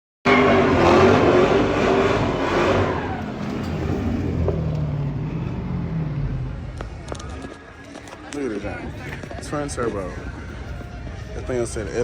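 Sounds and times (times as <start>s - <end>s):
car engine revving: 0.3s - 7.2s.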